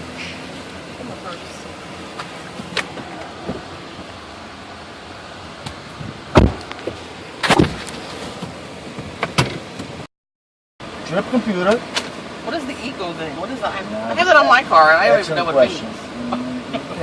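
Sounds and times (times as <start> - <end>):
car door thumping shut: 2.6 - 3.7, 5.7 - 10.0.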